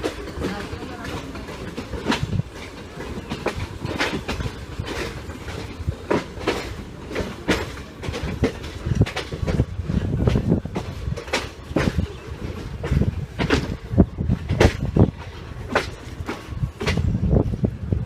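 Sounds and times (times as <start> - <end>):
steady train rumble: 0.0 - 18.0
train wheels clattering over rail joints: 0.0 - 18.0.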